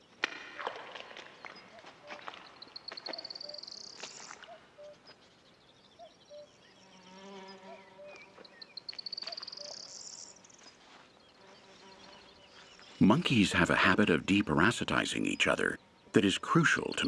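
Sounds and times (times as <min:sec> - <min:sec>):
insect low buzz: 0:06.2 - 0:13.0.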